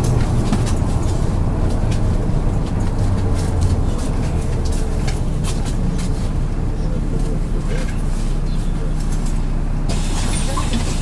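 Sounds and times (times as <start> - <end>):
body rattles and clicks: 0.0 - 8.1
bus engine droning: 0.0 - 11.0.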